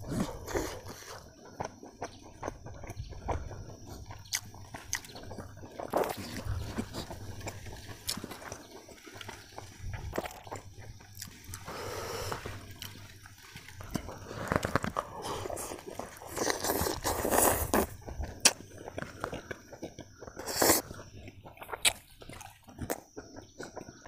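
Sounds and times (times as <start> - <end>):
slurps: 0.0 - 1.7, 4.3 - 9.3, 13.7 - 19.6, 20.2 - 23.0
man chewing with wet smacks: 0.0 - 24.0.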